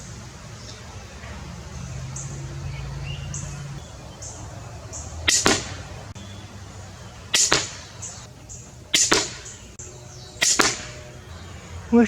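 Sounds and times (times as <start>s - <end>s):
bolt striking target: 5.2s - 6.1s, 7.3s - 9.8s, 10.4s - 11.2s
crossbow string snapping: 5.3s - 6.1s, 7.3s - 8.3s, 9.0s - 9.8s, 10.4s - 11.0s.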